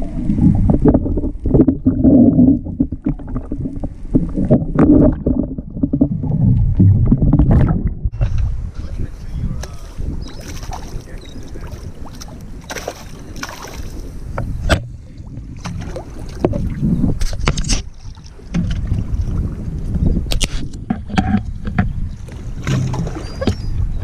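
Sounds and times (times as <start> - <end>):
wind rumbling on microphone: 0.0 - 24.0
water slapping against boat hull: 9.6 - 23.8
knocks and clicks from boat: 14.3 - 24.0.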